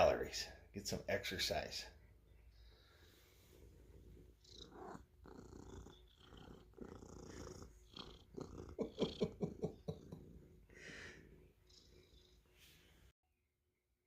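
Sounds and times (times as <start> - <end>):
cat purring: 2.1 - 13.1.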